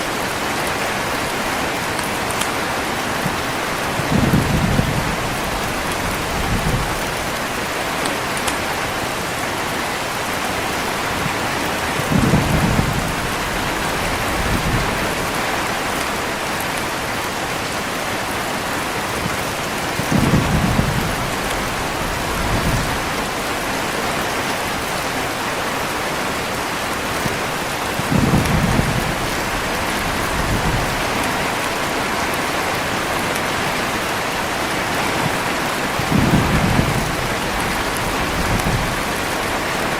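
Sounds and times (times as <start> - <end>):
heavy rain falling: 0.0 - 39.9
thunder rolling: 3.9 - 7.2, 12.0 - 15.5, 19.9 - 23.4, 28.0 - 31.4, 35.9 - 39.4.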